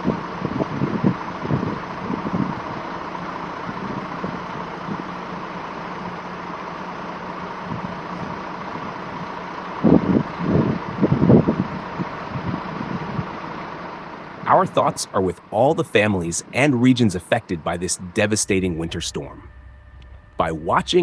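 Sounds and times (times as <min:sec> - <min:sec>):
wind on microphone: 0:00.0 - 0:02.7, 0:09.9 - 0:13.3
vehicle engine humming: 0:00.0 - 0:21.0.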